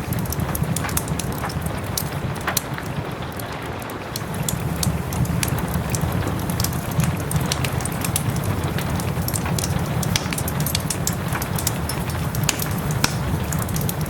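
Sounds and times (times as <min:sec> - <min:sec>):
soft rain: 0:00.0 - 0:14.0
wood fire crackling: 0:00.0 - 0:14.0.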